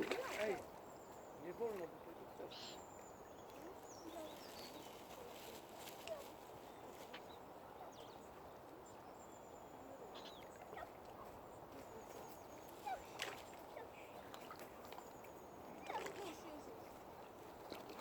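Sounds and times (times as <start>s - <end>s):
faint short bird calls: 9.7s - 11.0s.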